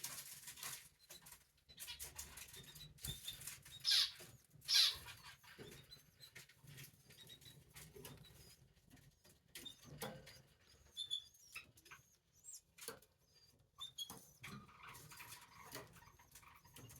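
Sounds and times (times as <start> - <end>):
faint high chick peeps: 3.0 - 5.4.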